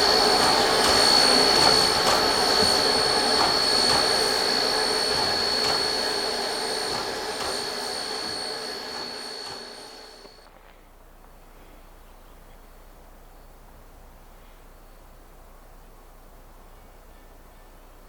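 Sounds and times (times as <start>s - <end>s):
steam locomotive hissing: 0.0s - 10.5s
thin high whine: 0.0s - 10.5s.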